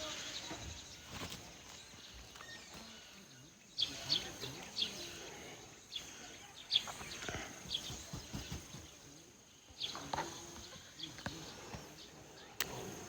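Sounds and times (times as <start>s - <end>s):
faint outdoor background noise: 0.0s - 13.0s
small birds chirping: 0.0s - 13.0s.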